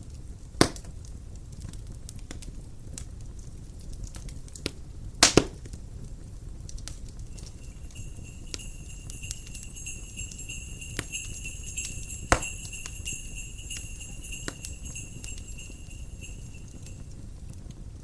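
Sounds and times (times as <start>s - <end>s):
wood fire crackling: 0.1s - 18.0s
wind rumble: 7.2s - 17.2s
jingle bells shaking: 7.3s - 17.2s.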